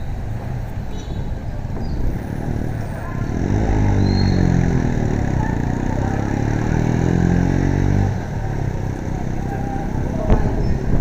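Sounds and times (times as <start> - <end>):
road and wind noise: 0.0 - 11.0
motorcycle engine accelerating: 1.8 - 11.0.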